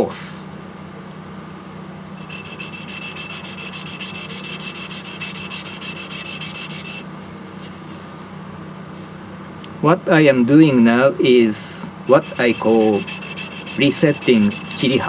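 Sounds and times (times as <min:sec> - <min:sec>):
knife grinding on wet whetstone: 0:02.2 - 0:07.0, 0:12.1 - 0:15.0.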